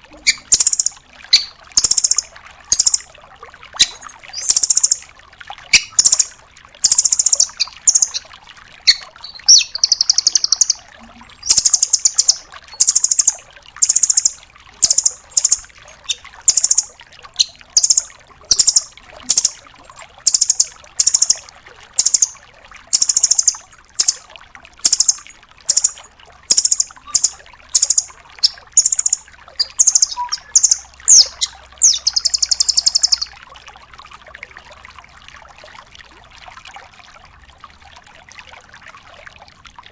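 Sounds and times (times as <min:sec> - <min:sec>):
bird rattling trills: 0:00.2 - 0:03.0, 0:05.7 - 0:08.2, 0:08.9 - 0:19.6, 0:22.9 - 0:24.2, 0:24.8 - 0:33.3.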